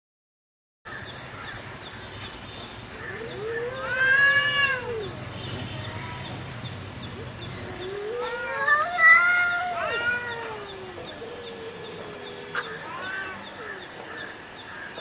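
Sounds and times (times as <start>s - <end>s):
cat meowing: 3.1s - 5.2s, 7.7s - 13.5s.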